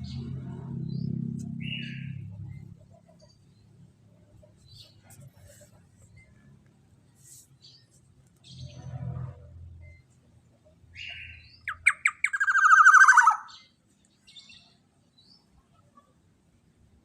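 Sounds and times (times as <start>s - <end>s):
bird calling with rattling trill: 0.0s - 3.8s, 10.9s - 15.5s.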